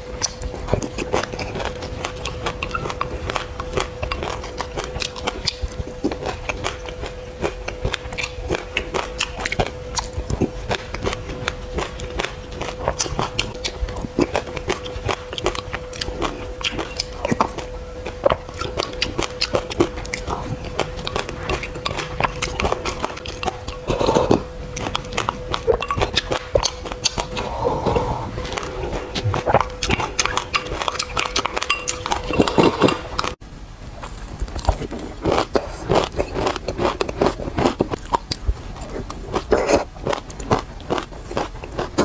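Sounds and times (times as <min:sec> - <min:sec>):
chewing crunchy seeds: 0:00.0 - 0:33.4, 0:34.0 - 0:42.0
wet mouth sounds: 0:00.0 - 0:33.4, 0:34.0 - 0:42.0
steady tone: 0:08.8 - 0:33.6.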